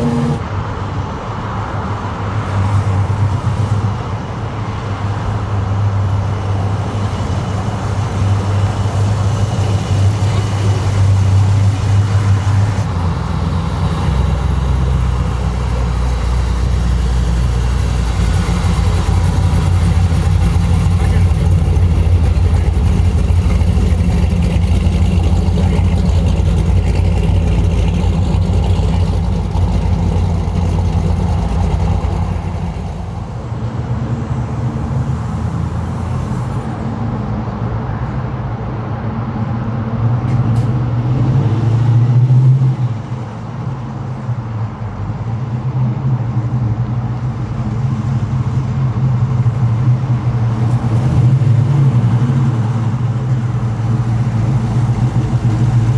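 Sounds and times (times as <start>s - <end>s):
deep car engine running: 0.0s - 0.4s, 7.0s - 34.7s, 46.5s - 55.9s
second car engine revving: 0.0s - 0.5s, 7.4s - 36.4s.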